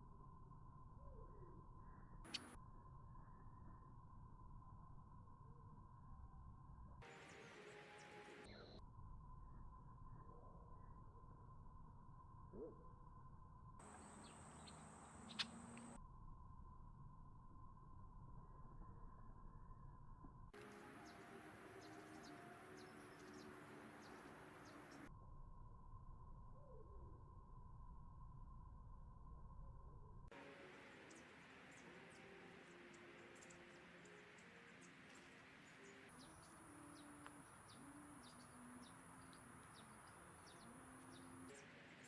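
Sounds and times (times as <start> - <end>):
faint bird chirps: 0.4 - 4.6, 7.0 - 16.0, 20.6 - 25.1, 26.4 - 27.4, 30.3 - 42.0
faint hiss: 30.4 - 42.0.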